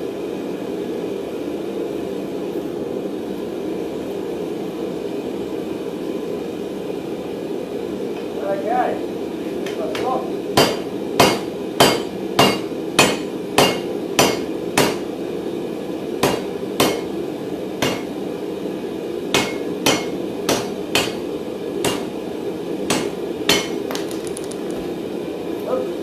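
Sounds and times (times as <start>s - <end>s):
steady background hum: 0.0s - 26.0s
hammer striking steel on anvil: 9.7s - 15.1s, 16.2s - 17.1s, 17.8s - 18.1s, 19.3s - 22.1s, 22.9s - 23.8s.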